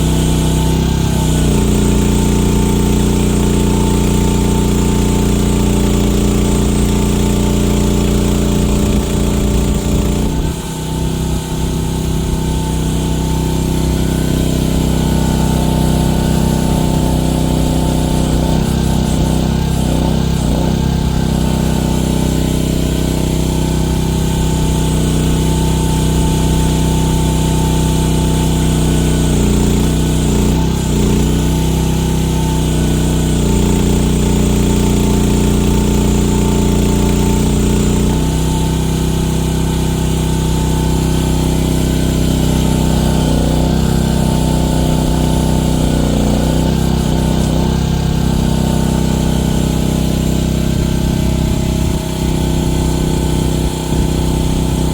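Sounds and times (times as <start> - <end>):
mini excavator engine running: 0.0 - 54.9.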